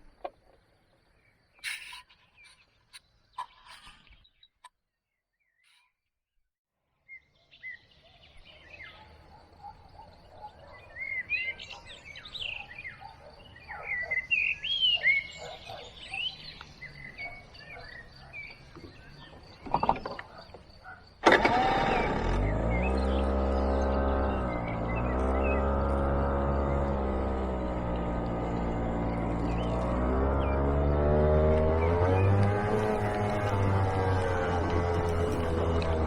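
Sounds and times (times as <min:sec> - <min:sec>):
birds chirping and whistling: 0:10.0 - 0:20.6, 0:22.4 - 0:27.5, 0:28.4 - 0:36.0.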